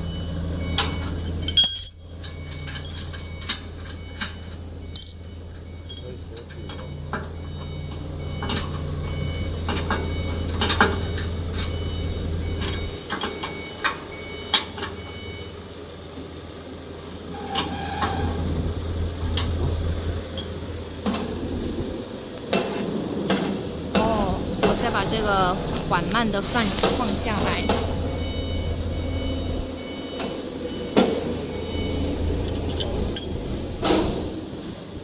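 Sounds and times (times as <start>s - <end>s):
metal clanks of machine parts: 0.8s - 7.2s, 32.4s - 34.3s
low motor hum: 23.7s - 35.0s.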